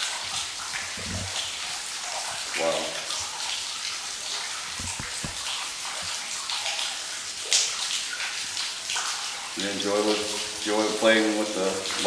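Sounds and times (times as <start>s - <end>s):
trickling dripping water: 0.0s - 12.0s
dull low thuds: 4.7s - 6.2s.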